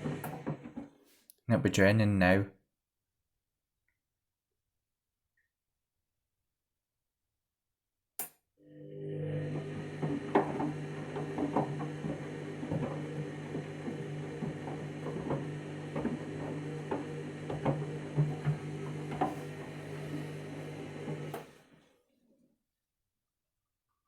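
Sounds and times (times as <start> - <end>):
drain pump humming: 8.7 - 21.6.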